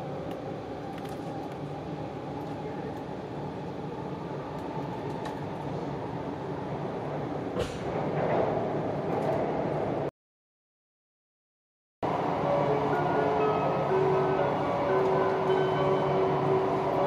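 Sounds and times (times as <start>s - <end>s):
train cabin rumble and hiss: 0.1s - 10.0s.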